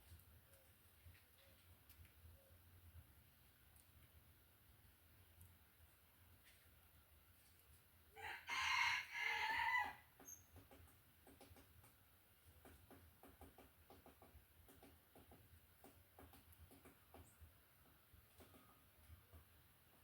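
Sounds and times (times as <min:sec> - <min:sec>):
rooster crowing: 0:08.2 - 0:10.1.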